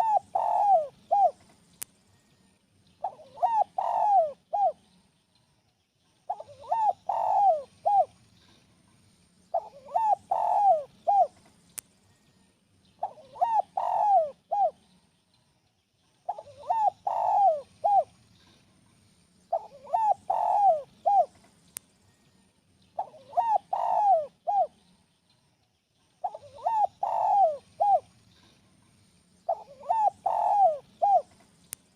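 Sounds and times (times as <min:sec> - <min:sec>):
dove cooing: 0:00.0 - 0:01.5, 0:03.0 - 0:04.8, 0:06.3 - 0:08.2, 0:09.5 - 0:11.4, 0:13.0 - 0:14.8, 0:16.3 - 0:18.1, 0:19.5 - 0:21.4, 0:23.0 - 0:24.8, 0:26.2 - 0:28.1, 0:29.5 - 0:31.4.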